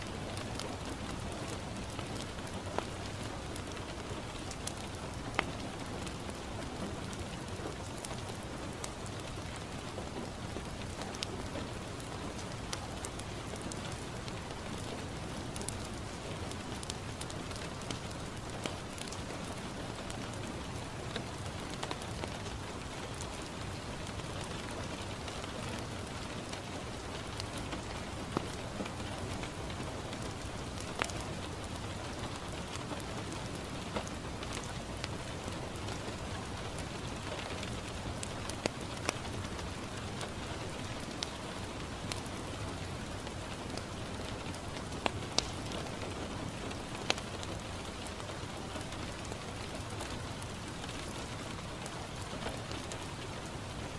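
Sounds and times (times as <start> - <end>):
rain on a window: 0.0 - 53.9
wood fire crackling pops: 18.9 - 19.3, 30.2 - 31.7, 37.0 - 39.8, 40.4 - 42.2, 43.2 - 47.3.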